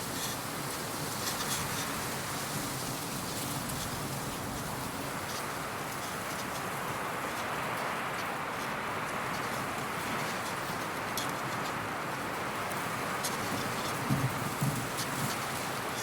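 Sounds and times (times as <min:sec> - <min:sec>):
soft outdoor rush: 0:00.0 - 0:16.0
faint light ticks: 0:07.3 - 0:11.8.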